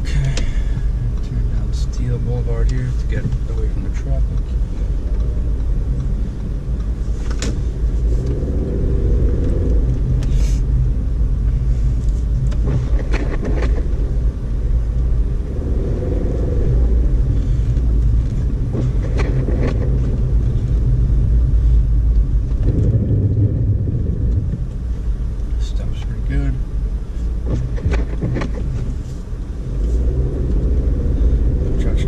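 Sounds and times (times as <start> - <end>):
car engine and tyres rumbling: 0.0 - 32.0
scattered clicks and knocks: 18.2 - 20.3, 27.4 - 28.9.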